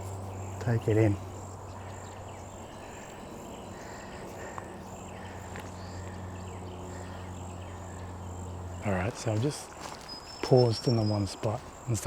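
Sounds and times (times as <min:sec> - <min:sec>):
short bird calls: 0:00.0 - 0:08.8
insects chirping: 0:00.0 - 0:12.0
steady low hum: 0:00.0 - 0:12.0.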